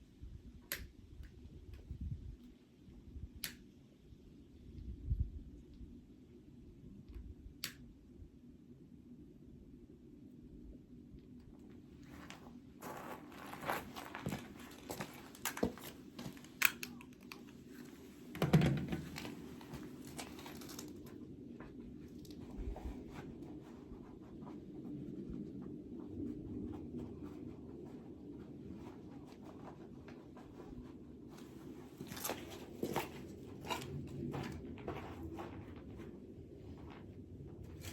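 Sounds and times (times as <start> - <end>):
sharp clicks: 0.7 - 1.4
crinkling dry material: 11.8 - 37.9.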